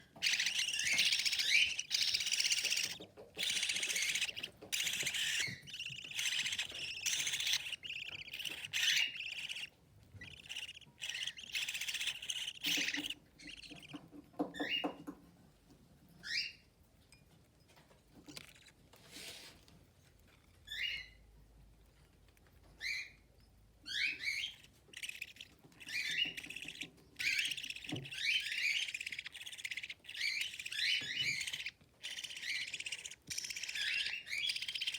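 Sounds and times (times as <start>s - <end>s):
budgerigar chicks chirping: 0.0s - 15.0s, 20.6s - 21.3s, 22.7s - 34.9s.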